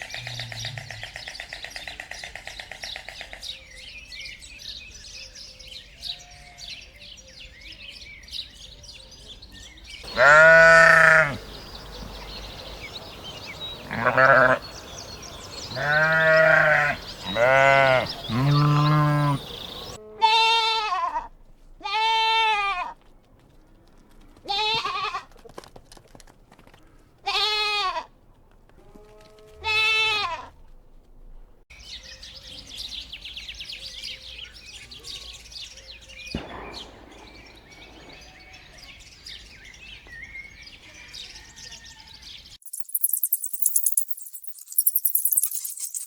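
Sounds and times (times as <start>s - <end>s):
faint ticking and chirps: 10.1s - 20.0s, 42.6s - 46.0s
goat bleating: 10.1s - 23.0s, 24.5s - 25.3s, 27.2s - 28.1s, 28.8s - 30.5s
sharp knock: 36.4s - 38.5s.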